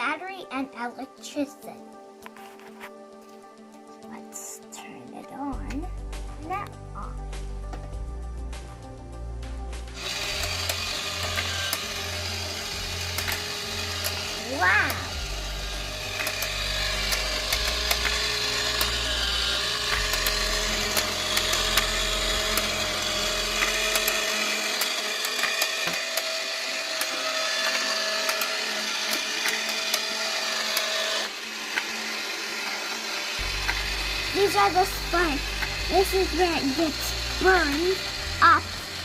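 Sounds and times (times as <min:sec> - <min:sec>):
small electric motor whirring: 0:09.9 - 0:39.0.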